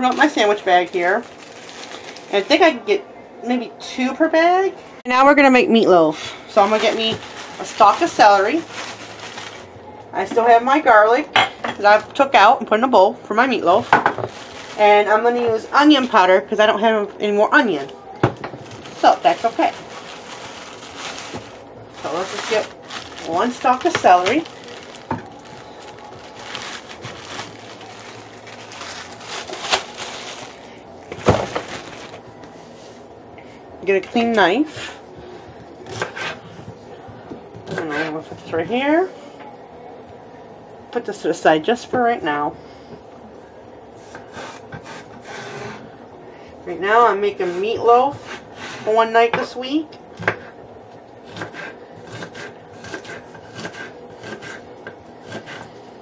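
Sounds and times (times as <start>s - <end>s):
celery rustling: 0.0s - 2.6s, 6.1s - 9.8s, 13.6s - 16.1s, 17.8s - 33.0s
knife chopping celery: 51.3s - 54.6s, 55.2s - 55.7s.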